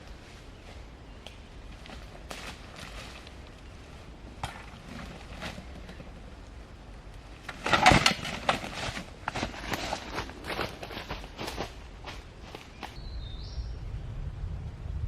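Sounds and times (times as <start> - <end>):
footsteps crunching through undergrowth: 1.7 - 4.0, 7.5 - 13.0.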